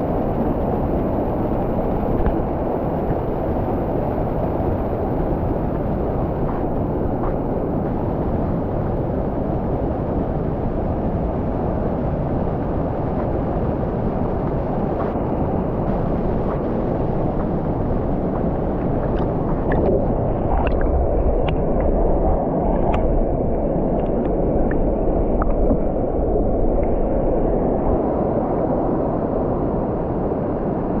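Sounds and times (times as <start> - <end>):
water splashing ticks: 16.0 - 19.9.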